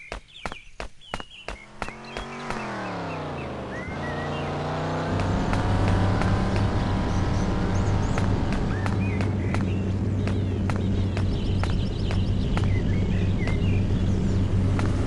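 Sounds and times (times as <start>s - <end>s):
birds chirping: 0.0s - 15.0s
car engine running: 1.5s - 15.0s.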